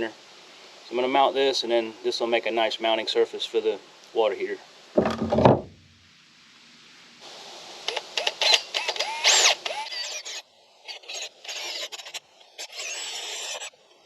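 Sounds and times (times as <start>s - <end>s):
short knocks: 5.0s - 5.9s
power drill boring through steel: 12.6s - 13.7s.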